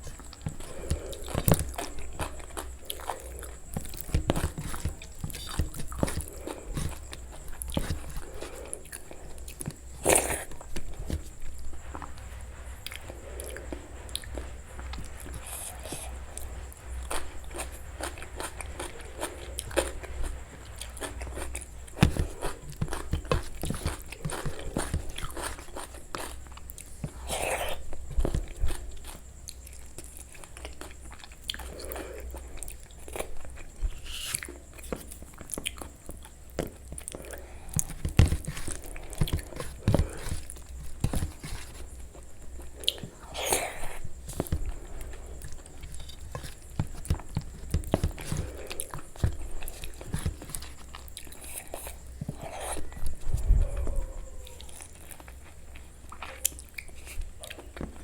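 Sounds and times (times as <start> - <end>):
chewing and mouth clicks: 0.0 - 12.1, 12.8 - 58.0
crunchy bites: 0.0 - 12.2, 12.8 - 58.0.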